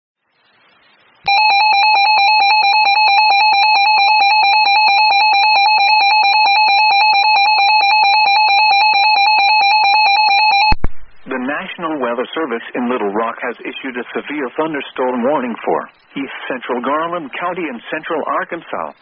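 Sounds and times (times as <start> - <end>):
loud fluttering electronic alert tone: 1.3 - 10.8.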